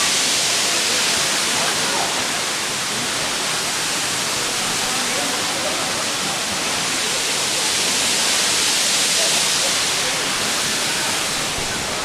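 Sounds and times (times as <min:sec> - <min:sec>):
waterfall rushing: 0:00.0 - 0:12.0
faint voices: 0:00.3 - 0:12.0.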